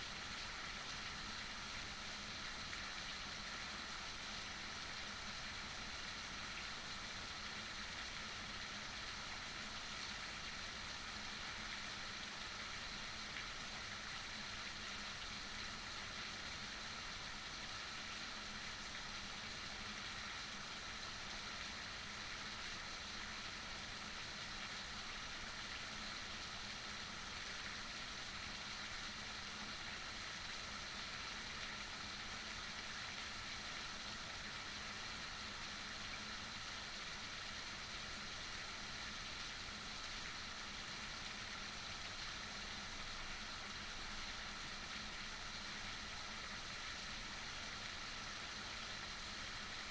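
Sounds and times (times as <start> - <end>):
heavy rain hissing: 25.1 - 49.9.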